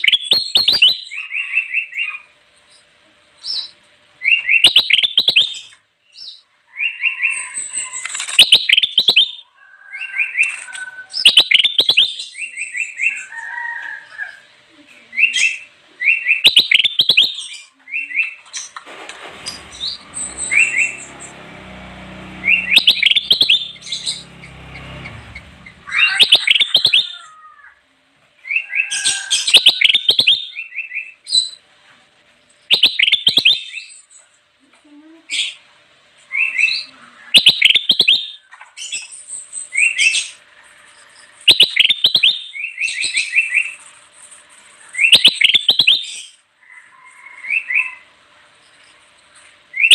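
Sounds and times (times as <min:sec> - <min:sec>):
bulbul singing: 0:16.1 - 0:17.5, 0:19.4 - 0:27.1
low rumbling noise: 0:18.9 - 0:26.4.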